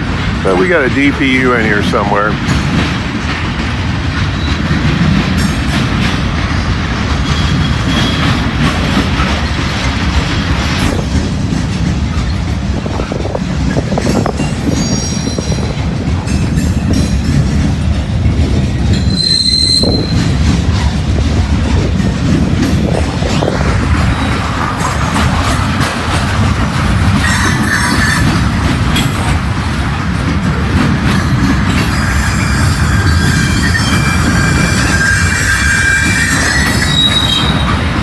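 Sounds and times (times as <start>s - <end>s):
train wheels rumbling on rail: 0.0s - 38.0s
high-pitched wheel squeals: 14.6s - 15.6s, 19.0s - 20.4s, 31.8s - 37.8s.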